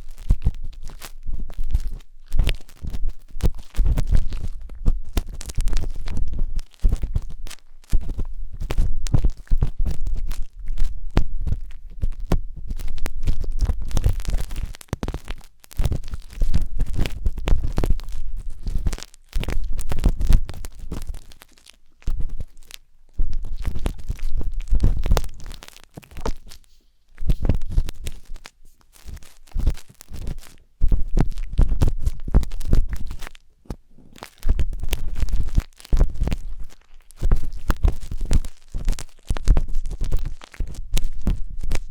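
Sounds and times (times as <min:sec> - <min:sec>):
wooden skewer scraping microphone: 0:22.0 - 0:41.9.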